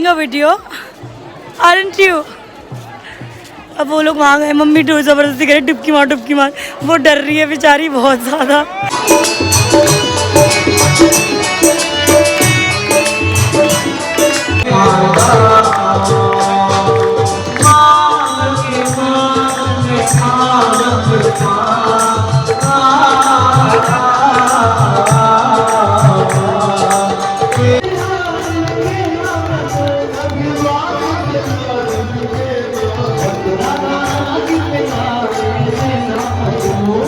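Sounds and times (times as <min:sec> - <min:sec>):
person singing: 0:12.9 - 0:37.0.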